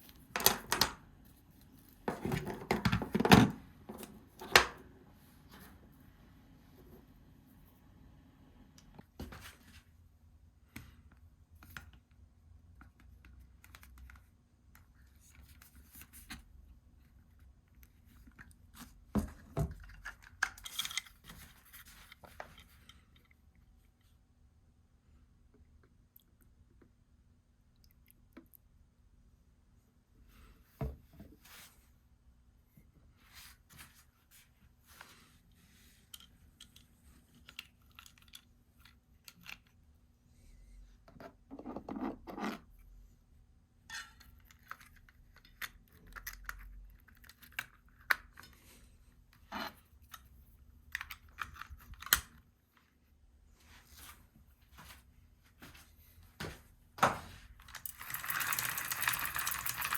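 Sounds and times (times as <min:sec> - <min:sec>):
chain clicking and scraping: 0:57.7 - 0:59.9.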